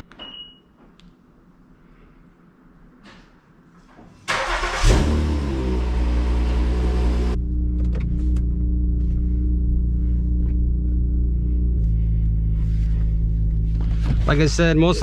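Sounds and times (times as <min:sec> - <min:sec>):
car engine starting and idling: 0:04.3 - 0:15.0.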